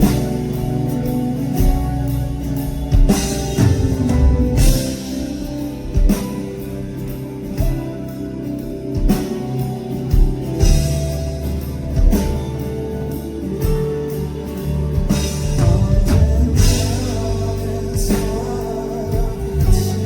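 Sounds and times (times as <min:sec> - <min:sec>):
drum kit beat: 0:00.0 - 0:20.0
guitars: 0:00.0 - 0:20.0
pop-rock band playing: 0:00.0 - 0:20.0.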